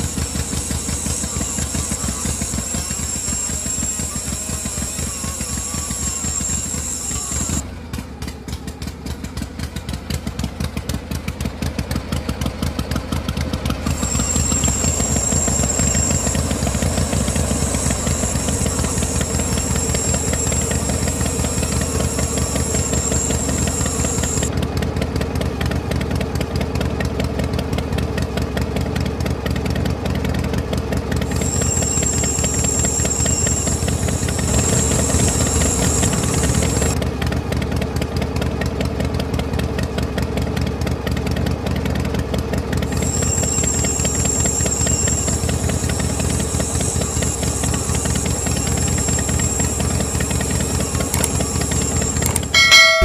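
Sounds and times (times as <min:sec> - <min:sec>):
small motor rattling: 0:00.0 - 0:09.4, 0:10.7 - 0:24.6, 0:29.7 - 0:37.1, 0:40.4 - 0:53.0.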